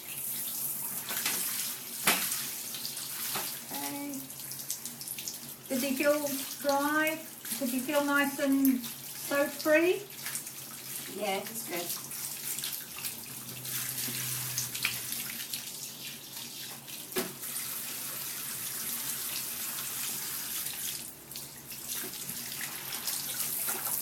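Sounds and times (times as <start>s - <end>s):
tap water splashing: 0.9s - 3.8s, 8.5s - 17.5s, 20.5s - 24.0s.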